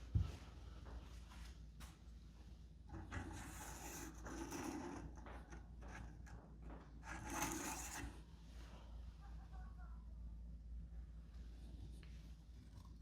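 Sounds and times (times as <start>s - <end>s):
parts rubbing and scraping: 2.9s - 8.3s.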